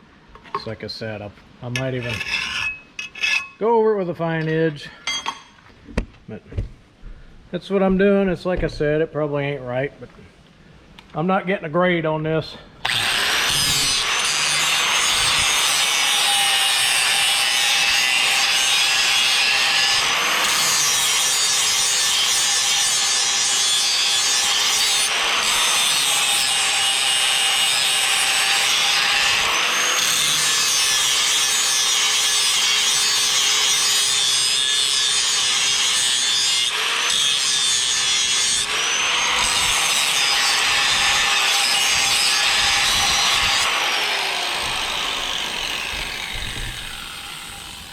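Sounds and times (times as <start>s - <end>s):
electric grinder grinding steel: 12.8s - 47.9s.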